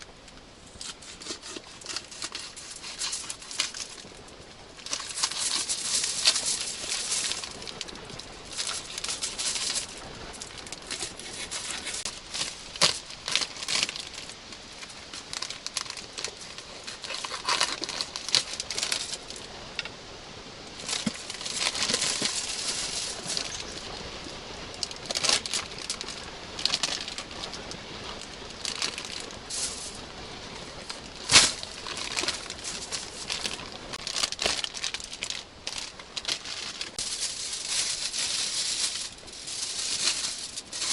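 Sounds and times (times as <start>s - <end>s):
aluminium foil crinkling: 0.0s - 19.9s, 20.8s - 40.9s
campfire crackling and popping: 0.0s - 40.9s.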